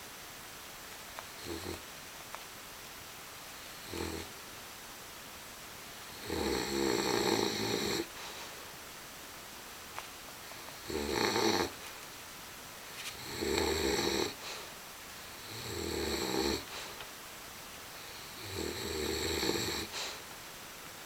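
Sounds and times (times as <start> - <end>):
dog snoring: 1.3 - 1.8, 3.6 - 4.4, 6.0 - 8.1, 10.6 - 11.8, 13.1 - 14.7, 15.3 - 17.0, 18.0 - 20.2
dog breathing quietly: 6.6 - 8.7, 13.1 - 15.6, 16.2 - 17.1, 19.6 - 20.3.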